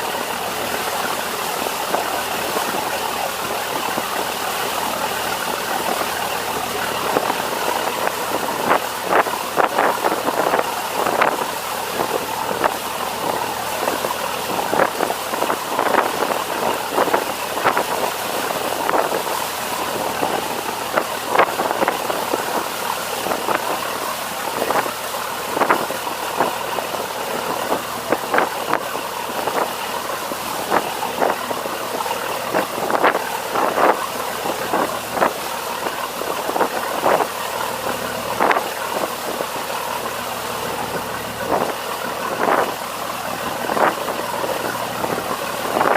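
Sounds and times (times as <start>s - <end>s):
boat engine running: 0.0s - 45.9s
wind noise: 7.0s - 29.8s, 30.5s - 37.3s, 41.4s - 42.8s, 43.4s - 45.9s.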